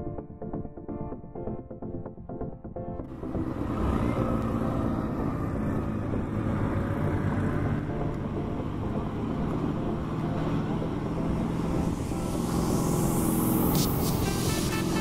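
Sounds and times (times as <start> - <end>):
road noise: 3.0 - 15.0
buggy engine humming: 3.1 - 15.0.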